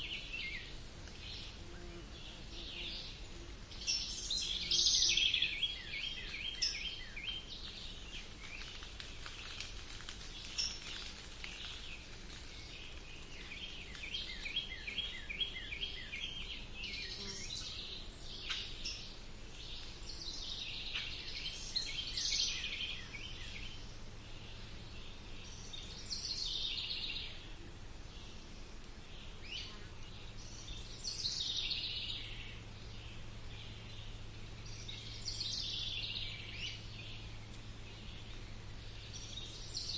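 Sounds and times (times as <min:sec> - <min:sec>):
birds chirping and trilling: 0:00.0 - 0:09.6, 0:29.0 - 0:39.9
faint low hum: 0:00.0 - 0:39.9.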